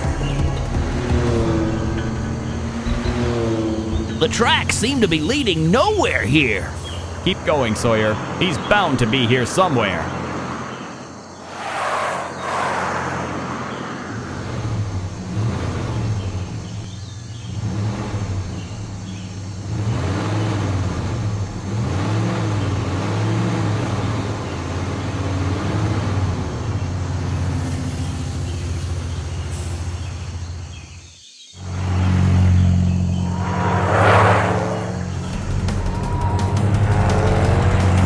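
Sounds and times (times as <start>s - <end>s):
cartoon vehicle engine drone: 0.0s - 10.4s, 31.6s - 38.0s.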